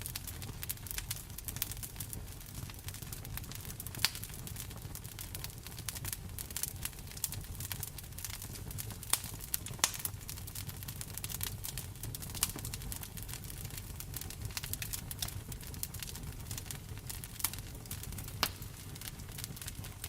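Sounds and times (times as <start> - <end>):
sharp fire snaps: 0.0 - 20.0
wood fire crackling: 0.0 - 20.0.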